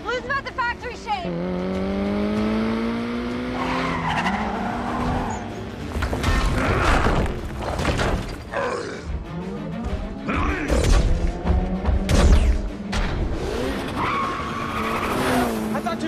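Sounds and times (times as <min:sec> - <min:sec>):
car engine revving: 0:00.0 - 0:06.6, 0:11.0 - 0:16.0
film score music: 0:00.0 - 0:16.0.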